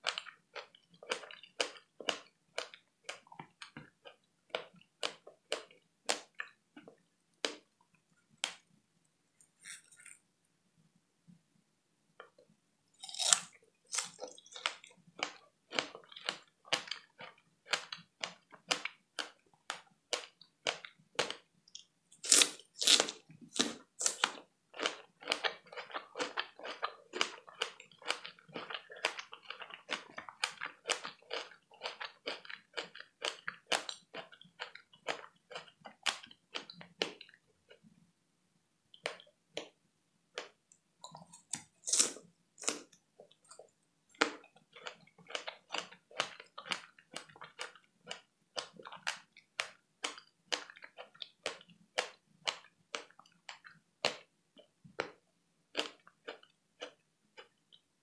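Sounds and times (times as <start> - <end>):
chewing clicks and mouth smacks: 40.4 - 57.9.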